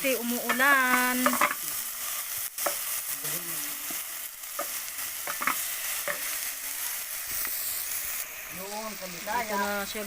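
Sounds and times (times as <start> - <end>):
chicken sizzling in hot oil: 0.0 - 10.0.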